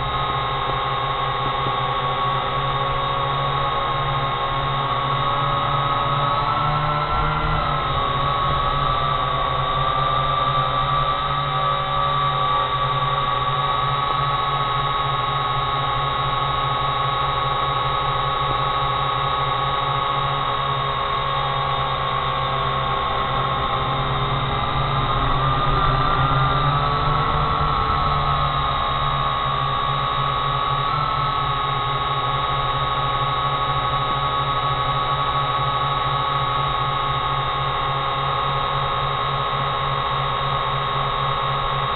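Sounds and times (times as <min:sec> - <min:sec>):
drone propellers whining: 0:00.0 - 0:41.9.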